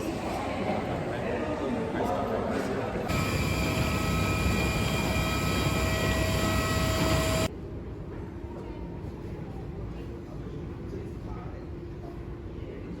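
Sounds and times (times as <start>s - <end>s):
held whining tones: 3.1s - 7.5s.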